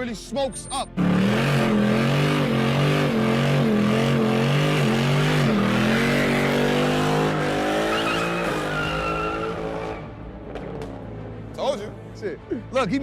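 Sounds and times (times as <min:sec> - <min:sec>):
engine revving: 0:01.0 - 0:11.0
tyres squealing: 0:07.9 - 0:10.0.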